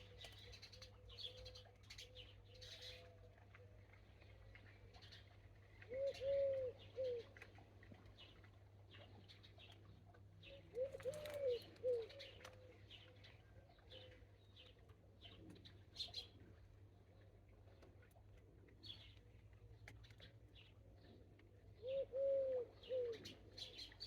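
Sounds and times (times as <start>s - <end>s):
dove cooing: 5.9s - 7.3s, 10.5s - 12.5s, 21.8s - 23.4s.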